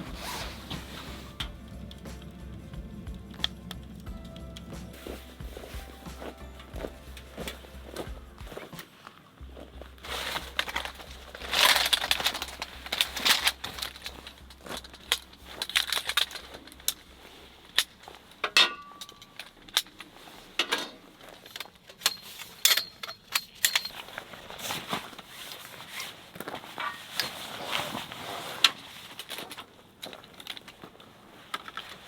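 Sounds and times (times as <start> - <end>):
rustling: 0.0 - 18.4
objects clicking and clinking: 10.1 - 17.0, 17.8 - 24.2.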